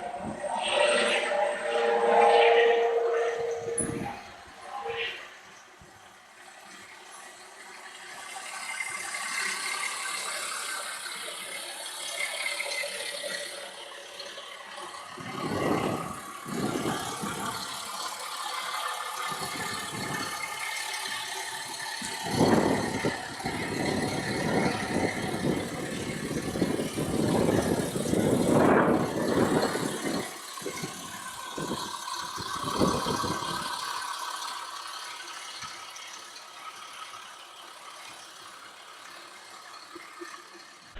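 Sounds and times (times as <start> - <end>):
helicopter running: 0.0 - 5.1
wind rumble on microphone: 15.2 - 17.6, 22.0 - 31.0, 31.6 - 33.7.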